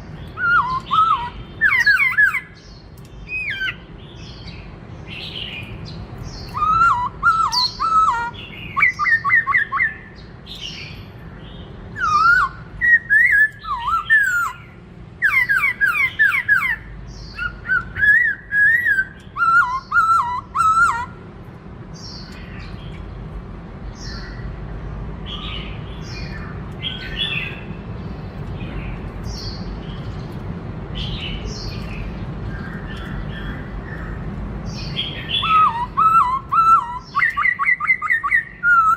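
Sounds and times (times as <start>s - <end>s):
bird calls: 0.0s - 21.2s, 25.2s - 38.9s
bird singing whistled phrases: 0.4s - 2.6s, 6.4s - 10.1s, 12.0s - 14.6s, 15.2s - 21.2s, 34.9s - 38.9s.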